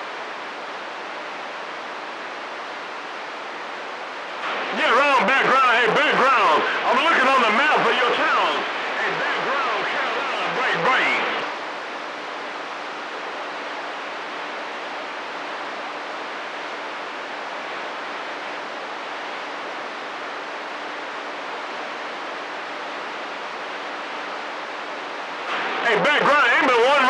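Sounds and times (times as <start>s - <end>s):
faint steady hum: 0.0s - 27.0s
radio static hiss: 0.0s - 27.0s.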